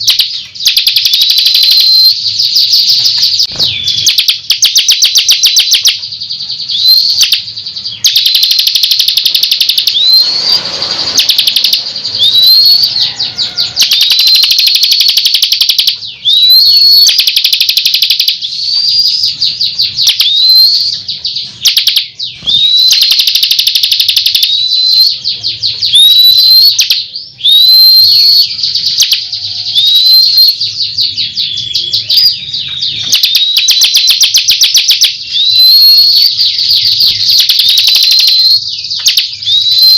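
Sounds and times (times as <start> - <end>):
bird singing rattling trills: 0.0 - 39.9.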